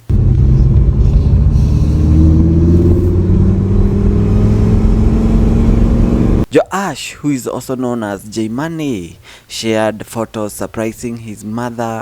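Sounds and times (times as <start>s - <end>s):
car engine revving up: 0.0s - 6.5s.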